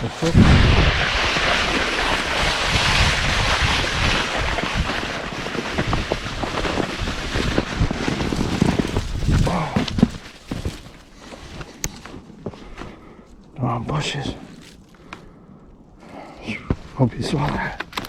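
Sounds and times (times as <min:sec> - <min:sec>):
snowboard sliding on snow: 0:00.0 - 0:11.6
wind across microphone: 0:00.0 - 0:18.0.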